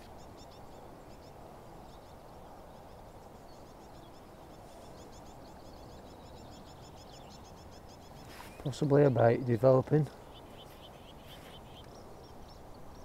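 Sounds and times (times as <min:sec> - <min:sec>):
small birds chirping: 0:00.0 - 0:13.0
outdoor air hiss: 0:07.4 - 0:12.9.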